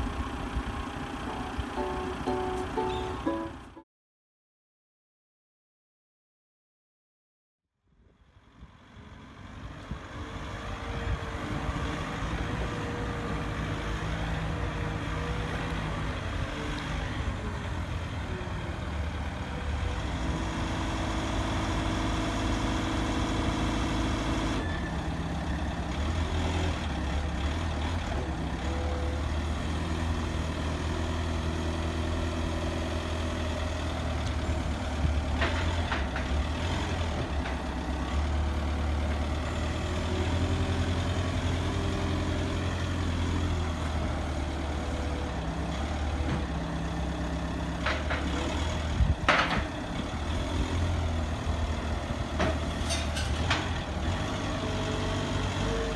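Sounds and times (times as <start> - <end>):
truck engine running: 0.0 - 3.8.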